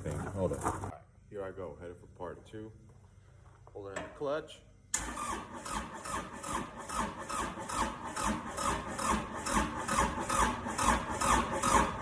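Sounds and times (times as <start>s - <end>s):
diesel engine cranking on starter: 5.0s - 12.0s.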